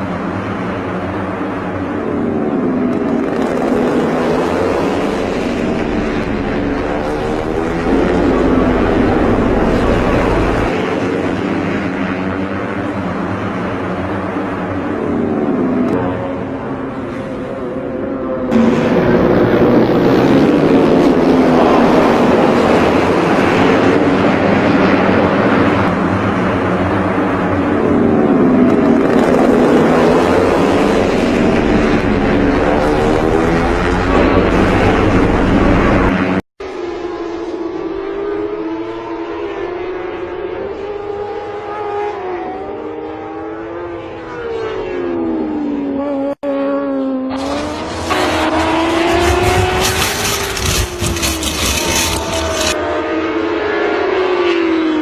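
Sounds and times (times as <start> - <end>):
racing motorcycle engines revving: 0.0 - 55.0.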